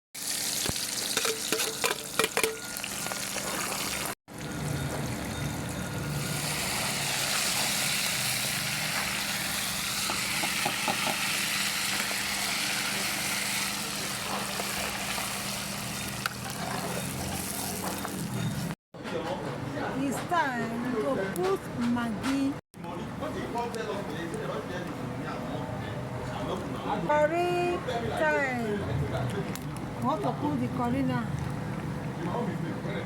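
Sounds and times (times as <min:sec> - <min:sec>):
food sizzling in hot oil: 0:00.2 - 0:18.7
stirring utensil knocking and clinking: 0:01.2 - 0:02.6.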